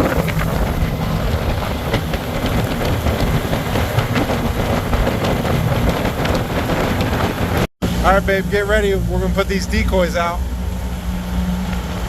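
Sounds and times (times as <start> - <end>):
boat motor running: 0.0 - 12.0
wind buffeting microphone: 0.0 - 12.0.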